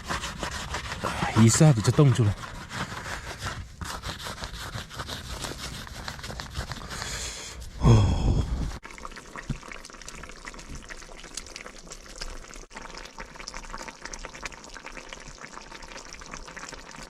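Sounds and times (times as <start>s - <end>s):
food bubbling on a stove: 6.1s - 17.0s.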